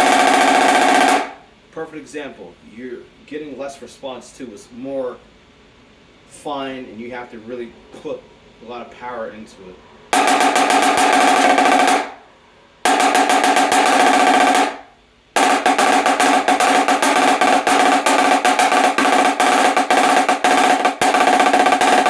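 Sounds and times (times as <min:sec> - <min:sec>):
snare drum rolls: 0:00.0 - 0:01.4, 0:10.2 - 0:12.2, 0:12.9 - 0:22.0.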